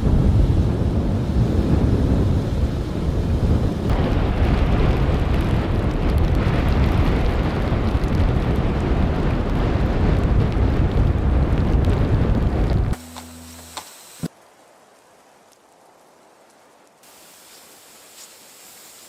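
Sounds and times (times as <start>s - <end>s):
strong wind on microphone: 0.0s - 13.0s.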